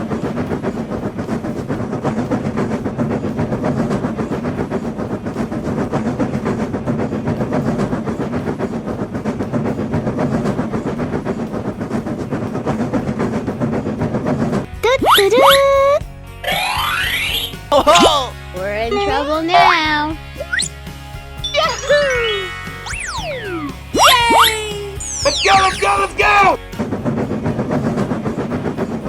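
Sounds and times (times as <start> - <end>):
train wheels clattering on rails: 0.0 - 15.0, 25.6 - 29.0.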